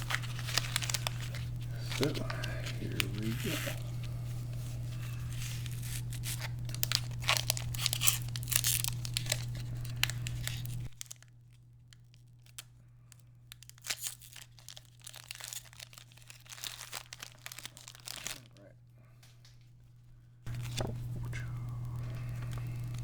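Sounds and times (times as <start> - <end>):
steady low hum: 0.0 - 11.0, 18.4 - 23.0
foil wrapper tearing and crinkling: 0.0 - 18.6, 20.5 - 23.0.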